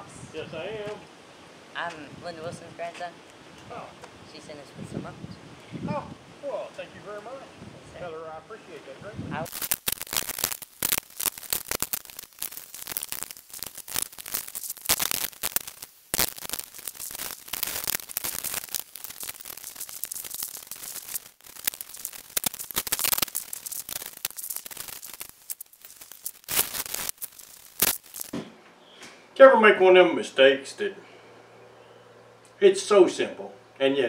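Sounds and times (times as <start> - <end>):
dense crackling and rattling: 9.4 - 28.5.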